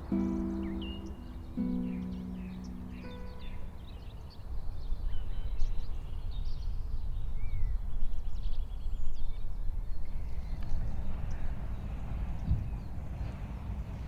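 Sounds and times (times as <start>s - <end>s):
small birds chirping: 0.0s - 4.4s.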